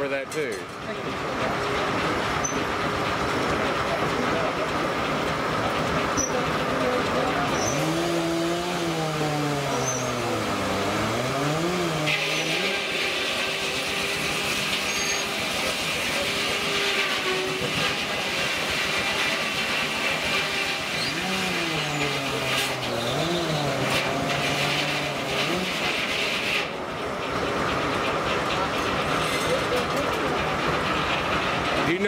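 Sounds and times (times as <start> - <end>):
circular saw cutting log: 5.6 - 30.3.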